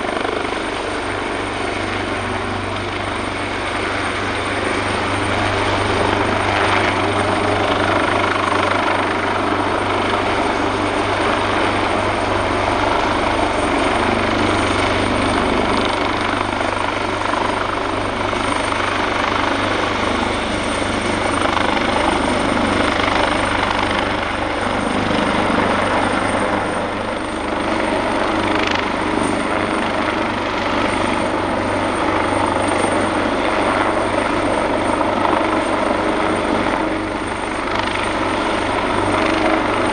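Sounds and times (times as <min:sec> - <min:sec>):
helicopter rotor noise: 0:00.0 - 0:39.9.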